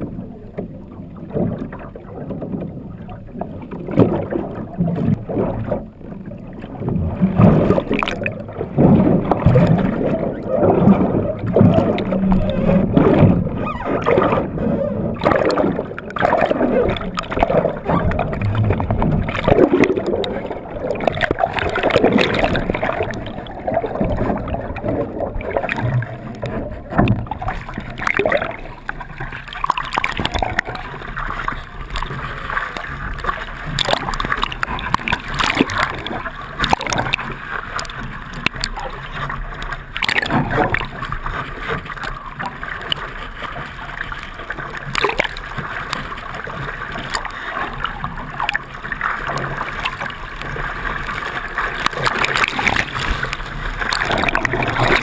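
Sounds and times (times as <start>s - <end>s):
water rushing against boat hulls: 0.0s - 55.0s.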